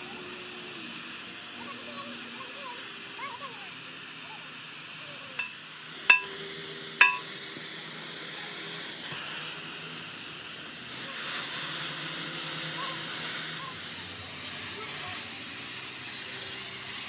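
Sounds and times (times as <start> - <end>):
ringing metal strikes: 5.4 - 6.4, 7.0 - 7.3.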